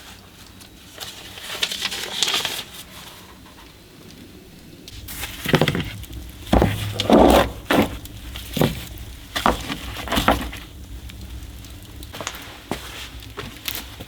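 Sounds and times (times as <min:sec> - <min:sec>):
knocks and clatters: 0:04.9 - 0:14.0.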